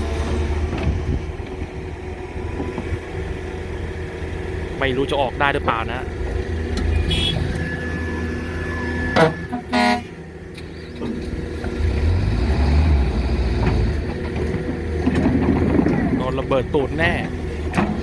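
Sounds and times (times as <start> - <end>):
excavator diesel engine under load: 0.0 - 18.0
loud horn-like blare: 6.9 - 10.4.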